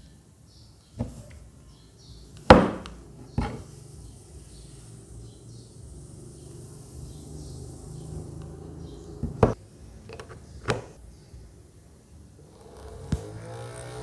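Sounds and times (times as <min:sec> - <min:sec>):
plastic clicks and knocks: 0:09.2 - 0:11.0.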